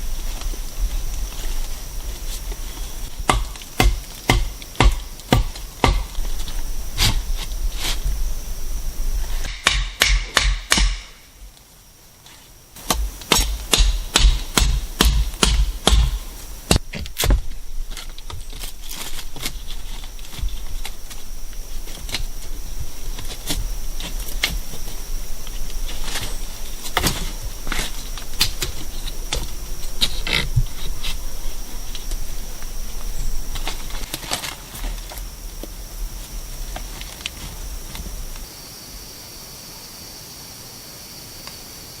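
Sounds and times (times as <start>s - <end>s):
tool knocking on wood: 3.3s - 6.1s, 12.9s - 17.5s.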